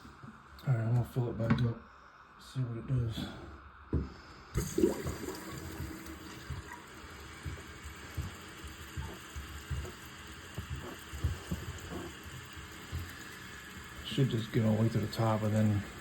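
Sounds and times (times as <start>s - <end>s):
water hissing into cistern: 4.5s - 16.0s
pipe knocks and gurgles: 4.6s - 16.0s.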